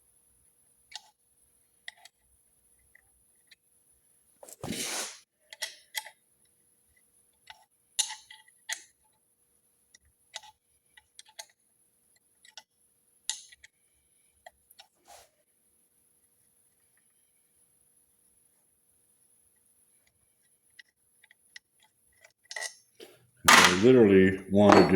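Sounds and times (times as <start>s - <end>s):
sharp metal knocks: 23.5s - 24.0s
metal scraping: 23.5s - 24.9s.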